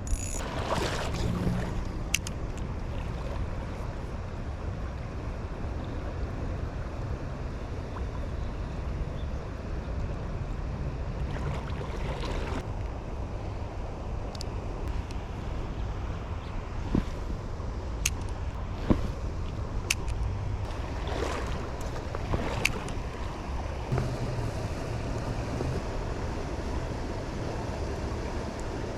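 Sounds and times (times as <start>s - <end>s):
river water rushing: 0.4s - 4.6s, 15.2s - 28.9s.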